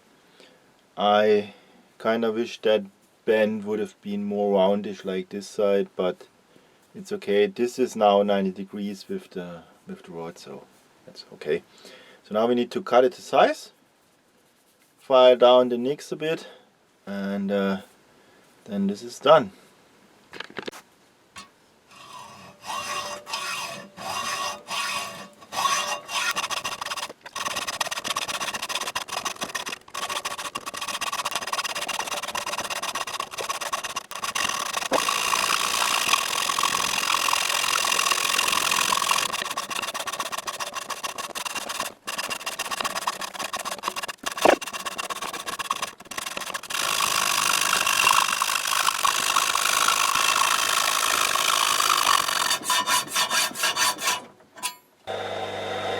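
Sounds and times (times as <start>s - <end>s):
hacksaw cutting steel rod: 21.4s - 54.8s.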